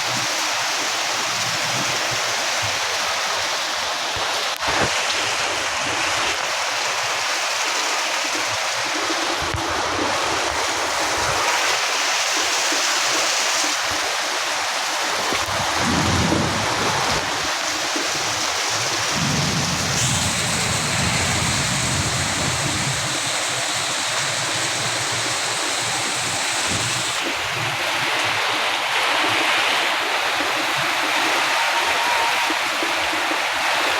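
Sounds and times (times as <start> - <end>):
heavy rain falling: 0.0 - 33.9
low rumbles: 15.4 - 17.5, 18.9 - 23.7.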